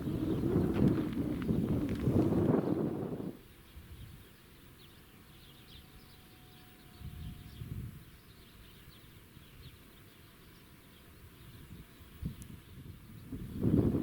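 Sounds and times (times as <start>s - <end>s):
bird chirps: 3.5s - 13.7s.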